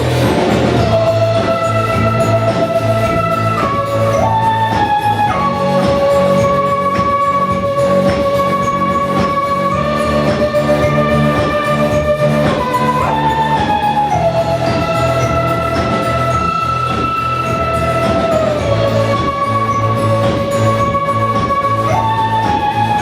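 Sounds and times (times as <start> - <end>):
lead instrument sliding long notes: 0.0 - 23.0
live band accompaniment: 0.0 - 23.0.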